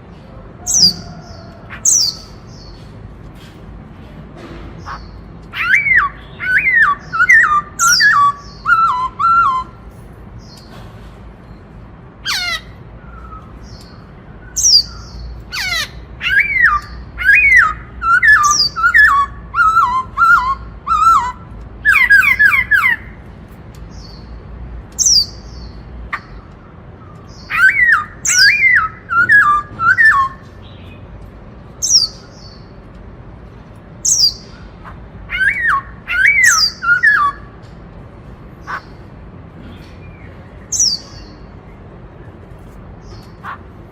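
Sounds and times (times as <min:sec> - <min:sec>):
bird singing whistled phrases: 0:05.6 - 0:09.8, 0:16.2 - 0:23.0, 0:27.5 - 0:30.5, 0:35.3 - 0:37.5.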